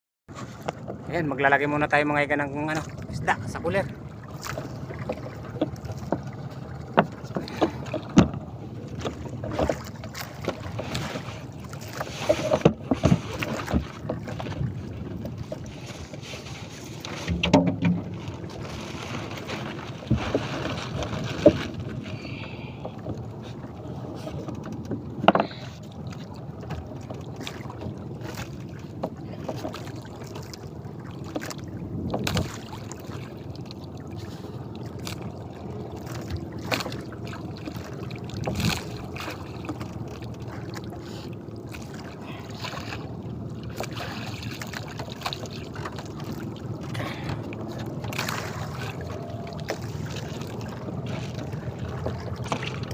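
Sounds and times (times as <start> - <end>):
boat engine hum: 0.3 - 52.9
knocks and thumps: 17.2 - 18.2.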